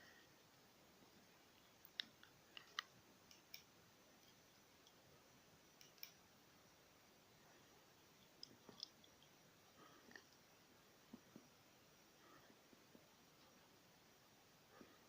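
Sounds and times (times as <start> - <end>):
faint sharp clicks: 5.8 - 6.2.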